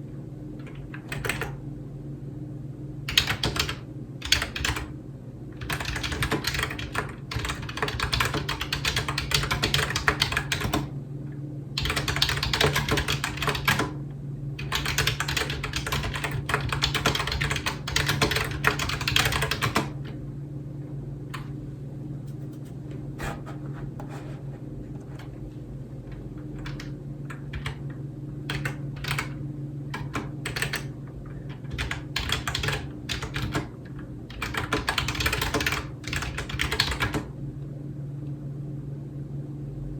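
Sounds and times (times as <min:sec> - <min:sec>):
low steady hum: 0:00.0 - 0:39.9
typing on a computer keyboard: 0:00.9 - 0:01.6, 0:03.1 - 0:04.9, 0:05.6 - 0:10.9, 0:11.8 - 0:14.0, 0:14.6 - 0:20.0, 0:26.6 - 0:27.9, 0:28.5 - 0:33.7, 0:34.3 - 0:37.3.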